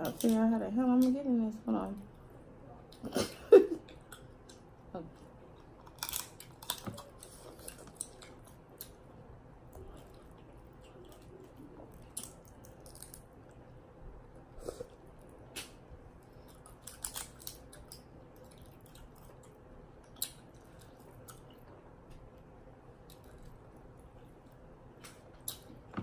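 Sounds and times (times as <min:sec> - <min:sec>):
faint low background noise: 0:00.0 - 0:26.0
seafood shells cracking: 0:05.8 - 0:07.1, 0:12.0 - 0:13.3.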